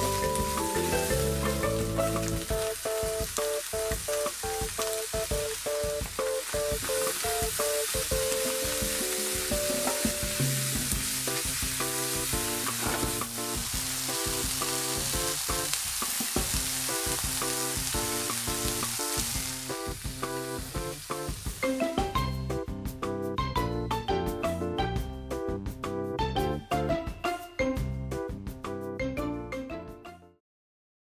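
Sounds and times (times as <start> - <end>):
food sizzling in a frying pan: 0.0 - 22.5
light background music: 0.0 - 30.4
chopsticks tapping a pan: 3.2 - 13.3.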